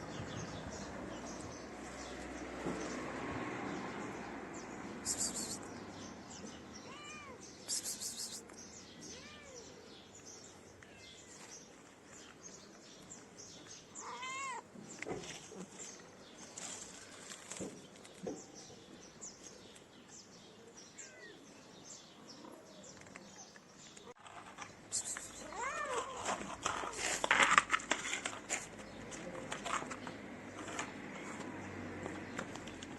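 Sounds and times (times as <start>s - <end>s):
kitten meowing: 6.9s - 7.4s, 9.1s - 9.8s, 14.0s - 14.6s, 25.4s - 26.2s
scratchy rustling and clicks: 22.9s - 32.9s.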